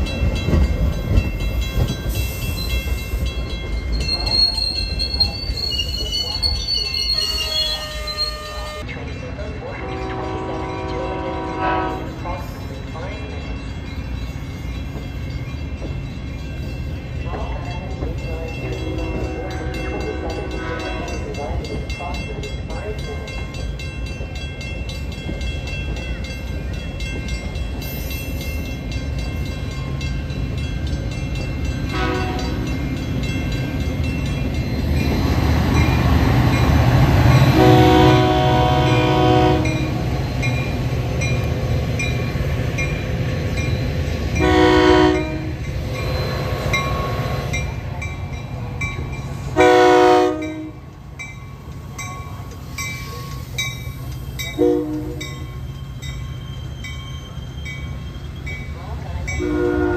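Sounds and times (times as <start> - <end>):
train rumbling past: 0.0 - 59.9
train air horn blasts: 9.8 - 12.2, 31.9 - 32.7, 37.4 - 40.0, 44.4 - 45.6, 49.6 - 50.8, 54.6 - 55.2, 59.4 - 59.9.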